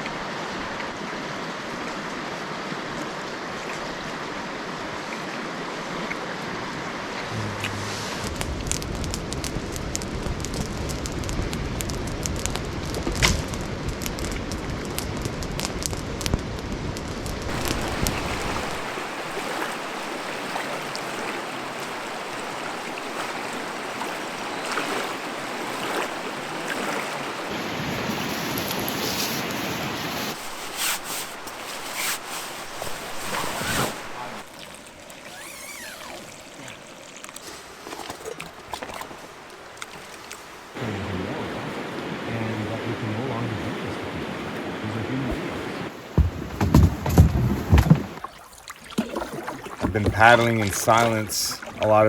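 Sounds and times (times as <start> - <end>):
rushing river water: 0.0 - 52.0
wind buffeting microphone: 7.3 - 25.6
sharp splashes or knocks: 17.5 - 27.5, 45.3 - 51.8.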